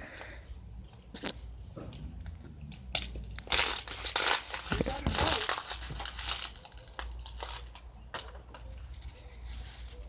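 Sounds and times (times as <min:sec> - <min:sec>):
bird scratching dry dirt: 0:03.0 - 0:10.0.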